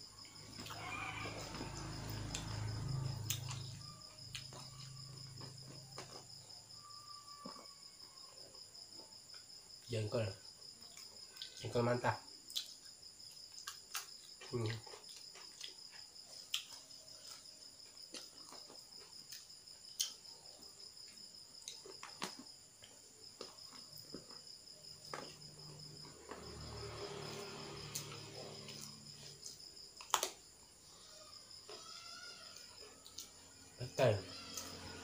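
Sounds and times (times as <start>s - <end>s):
crickets chirping: 0.0s - 35.0s
eating clicks and smacks: 12.5s - 16.8s.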